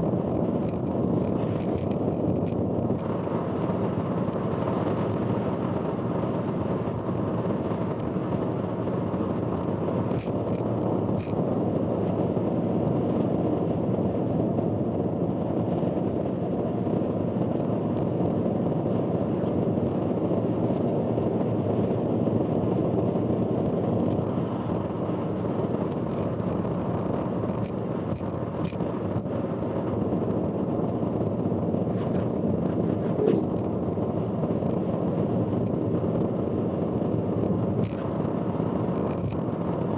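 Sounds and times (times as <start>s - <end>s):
car road and engine noise: 0.0s - 39.9s
faint ticks: 25.9s - 29.3s, 37.8s - 39.8s.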